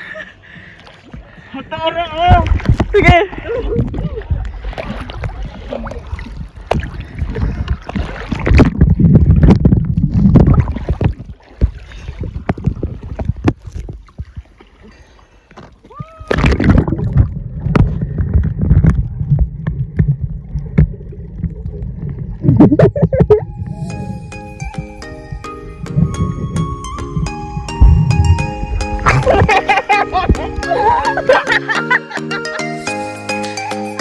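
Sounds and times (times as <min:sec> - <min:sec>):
water splashing and sloshing: 0:00.0 - 0:32.5
heavy rumbling: 0:25.0 - 0:31.6.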